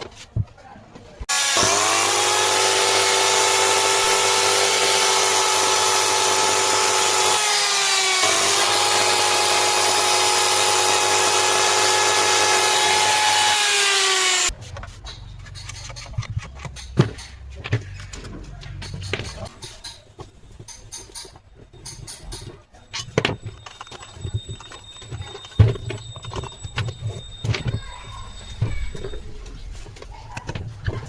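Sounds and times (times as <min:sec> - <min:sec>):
electric cutter motor whining: 0:01.3 - 0:14.5
scattered knocks and clatter: 0:14.8 - 0:31.0.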